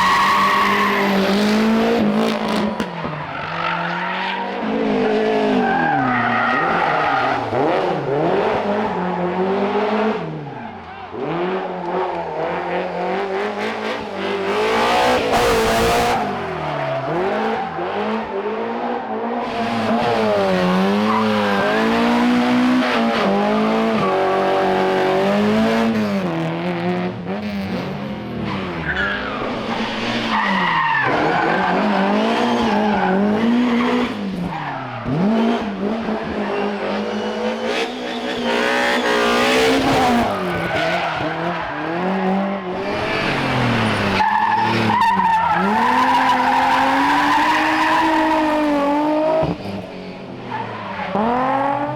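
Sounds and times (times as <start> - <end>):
tyre squeal: 0.0 - 1.4
rally car engine revving: 0.0 - 51.9.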